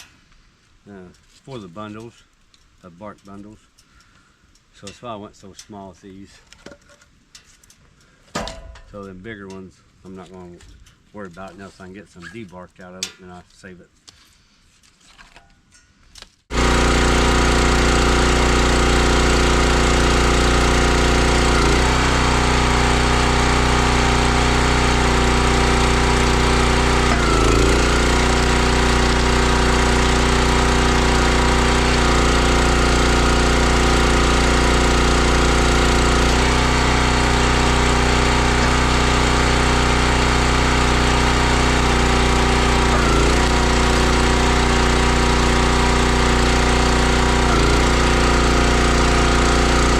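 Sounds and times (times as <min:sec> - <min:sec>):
log splitter engine running: 0:16.5 - 0:49.9.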